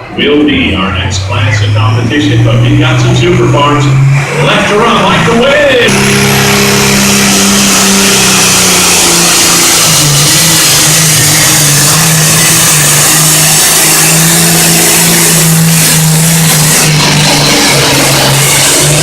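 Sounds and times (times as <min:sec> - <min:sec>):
tractor engine at full throttle: 0:00.0 - 0:19.0.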